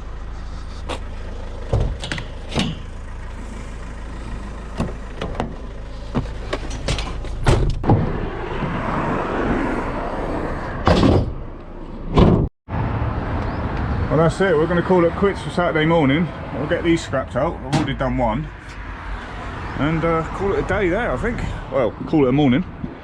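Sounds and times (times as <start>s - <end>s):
van door shutting with bang: 6.2s - 8.3s, 10.8s - 11.4s, 12.1s - 12.5s.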